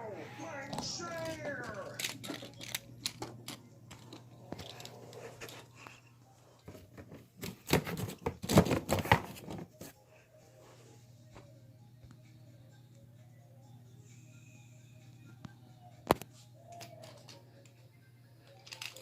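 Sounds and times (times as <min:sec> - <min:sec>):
small hard objects clicking and knocking: 0:01.2 - 0:04.9, 0:18.4 - 0:19.0
faint steady hum: 0:10.0 - 0:19.0.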